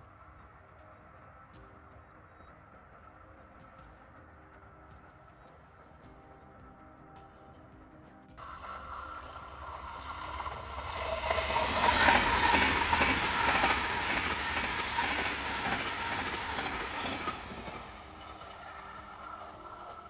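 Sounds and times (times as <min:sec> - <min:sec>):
train passing close: 0:08.4 - 0:20.0
wheels clacking over rail joints: 0:08.4 - 0:20.0.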